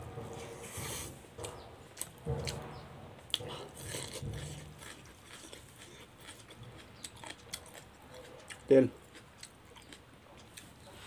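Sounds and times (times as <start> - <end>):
person chewing: 0.5 - 11.0.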